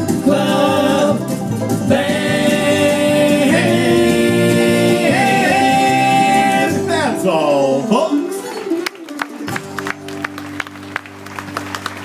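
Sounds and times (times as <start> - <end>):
vocal group singing harmony: 0.0 - 7.2
acoustic guitar: 0.0 - 12.0
banjo: 0.0 - 12.0.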